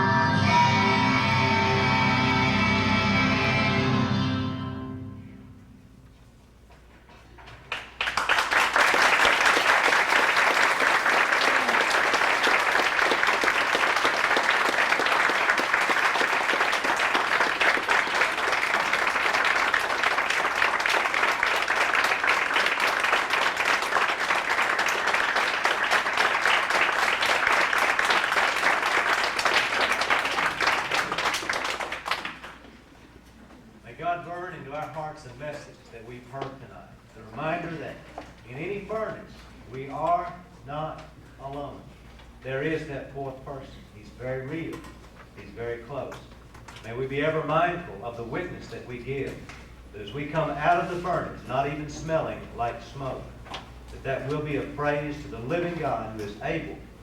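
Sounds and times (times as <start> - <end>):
congregation applauding: 7.6 - 32.8.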